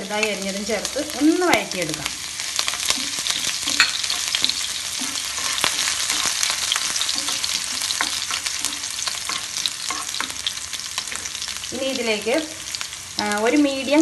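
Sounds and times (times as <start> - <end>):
garlic sizzling in hot oil: 0.0 - 14.0
wooden spatula scraping a pan: 2.6 - 11.4.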